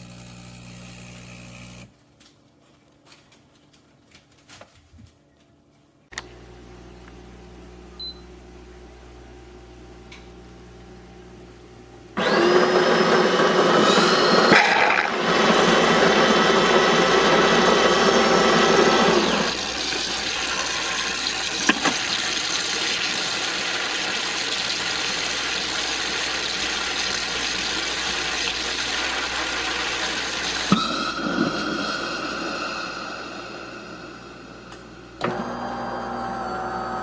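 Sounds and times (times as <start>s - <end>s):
coffee grinder whirring: 0.0s - 1.9s, 12.2s - 37.0s
espresso machine running hum: 0.0s - 1.9s, 6.2s - 37.0s.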